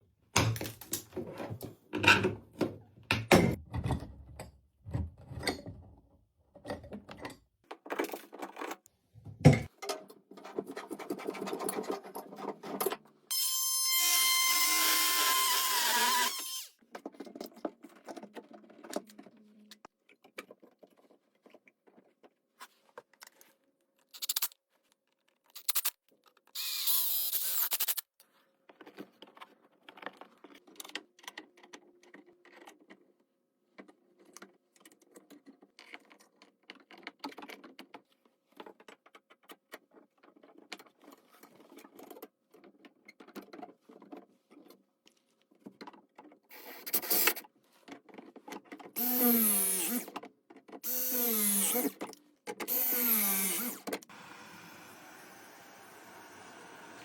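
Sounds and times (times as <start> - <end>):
power tool running: 13.3 - 16.7, 49.0 - 50.0, 50.8 - 51.9, 52.7 - 57.0.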